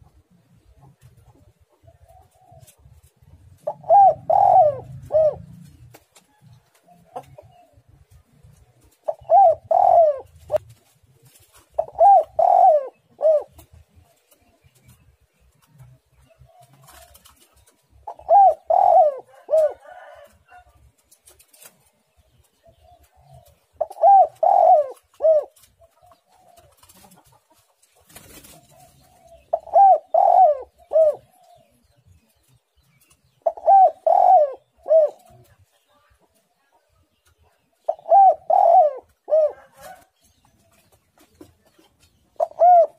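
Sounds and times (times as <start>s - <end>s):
dove cooing: 0.6s - 7.9s, 8.8s - 14.9s, 16.3s - 20.7s, 22.6s - 27.4s, 28.2s - 32.4s, 33.4s - 35.6s, 37.7s - 40.1s, 42.3s - 42.9s.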